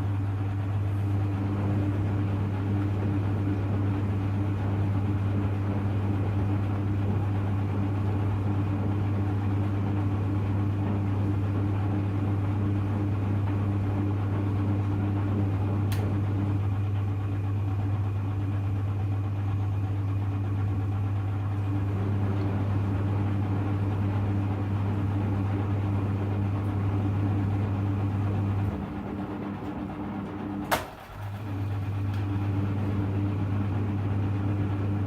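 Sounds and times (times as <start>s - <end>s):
washing machine humming: 0.0s - 35.0s.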